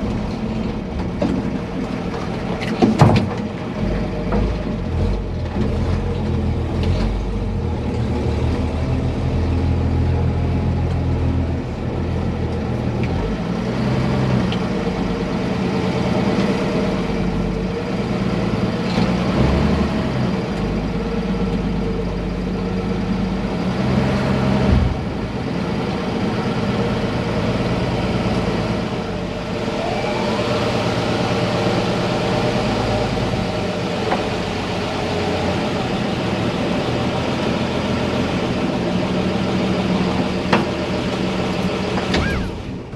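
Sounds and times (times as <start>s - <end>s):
vehicle engine running: 20.1s - 42.9s.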